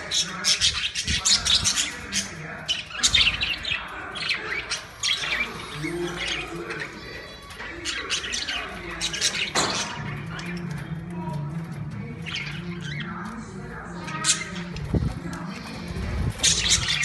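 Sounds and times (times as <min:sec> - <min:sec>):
budgerigars chirping: 0:00.0 - 0:10.9, 0:12.2 - 0:17.0.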